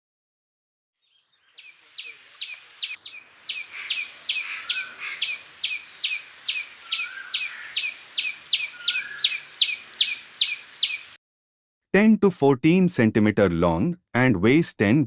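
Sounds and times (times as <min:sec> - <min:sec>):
bird calling sharp repeated notes: 0:01.3 - 0:11.2
soft low rising bird call: 0:01.4 - 0:11.2.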